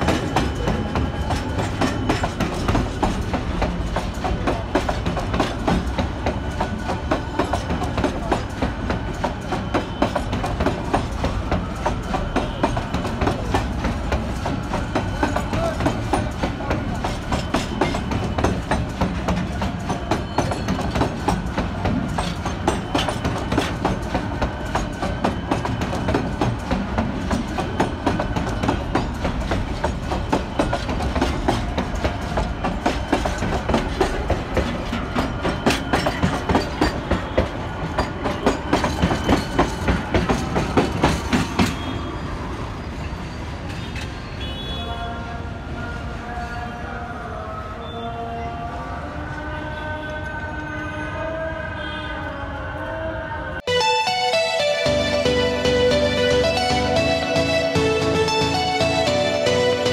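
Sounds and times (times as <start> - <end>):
train low rumble: 0.0 - 41.9, 53.6 - 59.9
train wheels clacking: 0.0 - 42.0.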